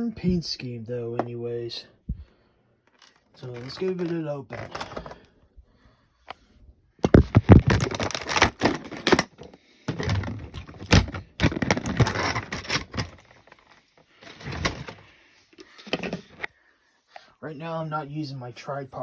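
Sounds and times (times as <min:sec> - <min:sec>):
cardboard packaging rustling: 0:07.0 - 0:15.0.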